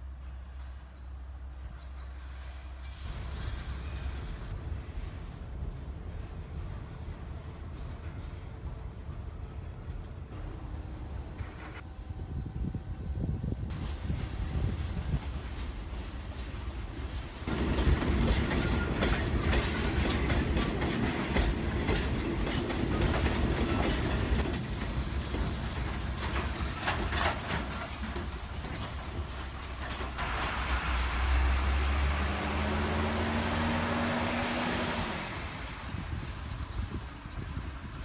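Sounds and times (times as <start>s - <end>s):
freight train rumbling: 0.0s - 38.0s
metallic clanks from wagons: 15.0s - 30.8s
loud hiss: 30.2s - 32.9s.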